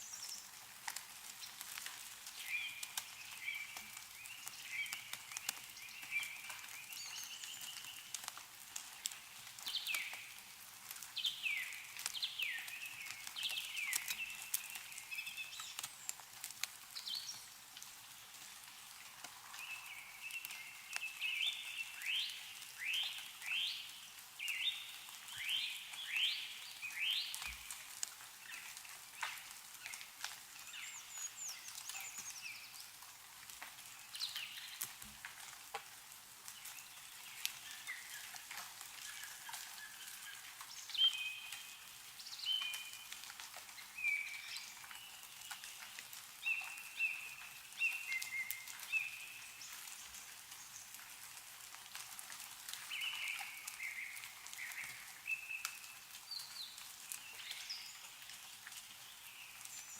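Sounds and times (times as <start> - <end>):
meltwater dripping from trees: 0.0 - 59.9
birds singing: 2.4 - 8.2, 11.2 - 16.2, 19.6 - 27.8, 30.6 - 33.0.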